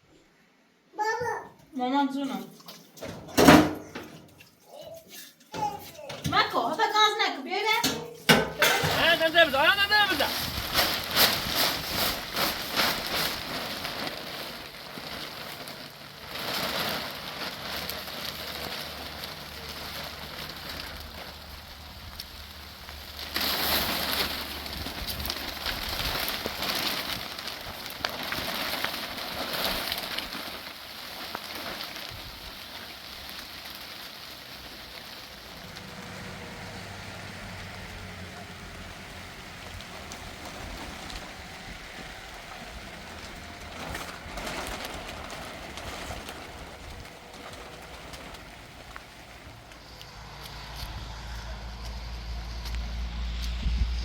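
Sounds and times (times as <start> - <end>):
rain pattering: 2.0 - 54.0.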